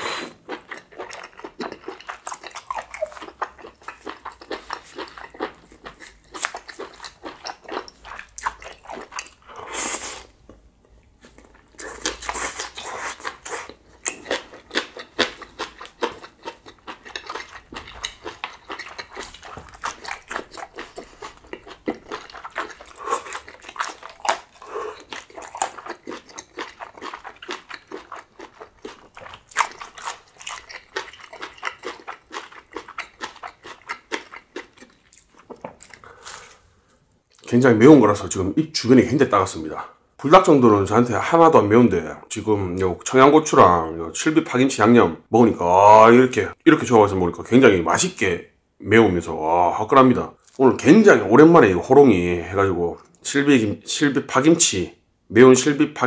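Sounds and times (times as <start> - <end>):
close chewing and mouth clicks: 0.1 - 36.4.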